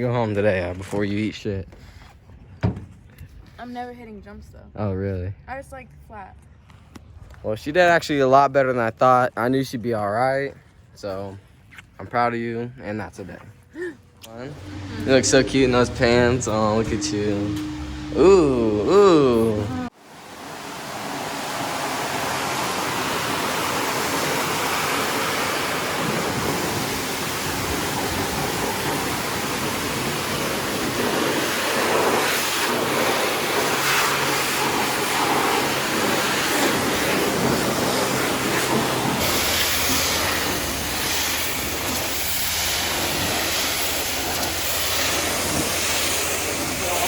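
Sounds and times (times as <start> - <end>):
wind and road noise: 0.0 - 47.0
faint engine drone: 13.5 - 47.0.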